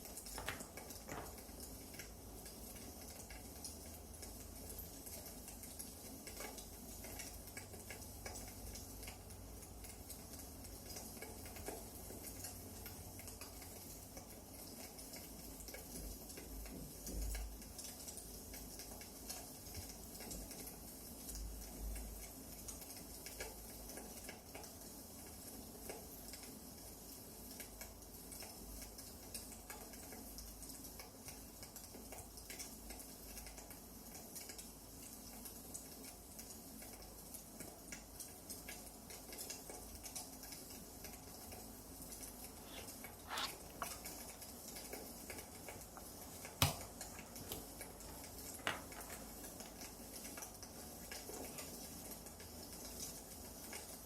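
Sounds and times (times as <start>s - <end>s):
wood fire crackling: 0.0s - 4.0s, 35.8s - 54.0s.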